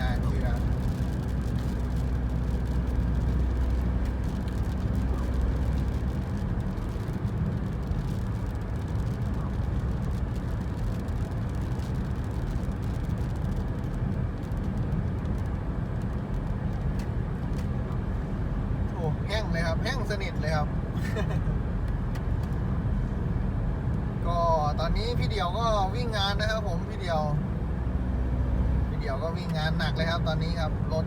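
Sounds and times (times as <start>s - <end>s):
car engine drone: 0.0s - 31.0s
tyre road noise: 0.0s - 31.0s.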